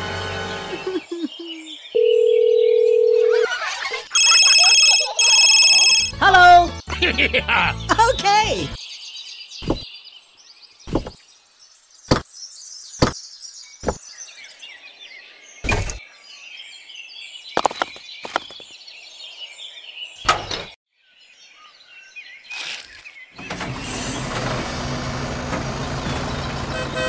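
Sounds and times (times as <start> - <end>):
birds chirping: 0.5 - 24.0
small bricks knocking: 17.6 - 18.6.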